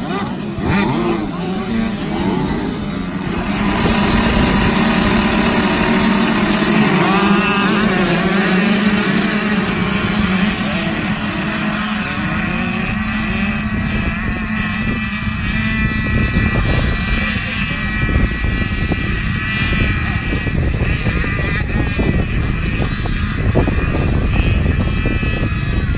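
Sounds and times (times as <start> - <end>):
motocross bikes racing: 0.0 - 25.9.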